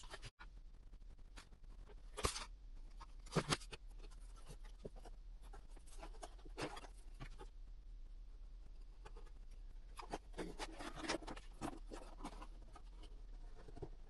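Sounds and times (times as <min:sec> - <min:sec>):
cardboard scratching and rustling: 0:02.1 - 0:07.5, 0:09.9 - 0:14.0.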